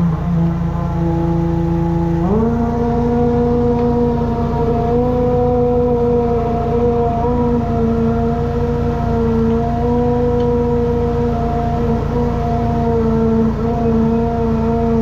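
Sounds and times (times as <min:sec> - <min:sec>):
drain jetter engine running: 0:00.0 - 0:15.0.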